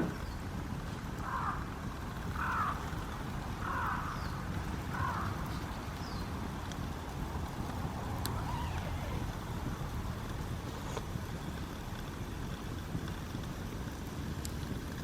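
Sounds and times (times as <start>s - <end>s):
low background rumble: 0.0s - 15.0s
bird harsh calls: 3.6s - 6.4s.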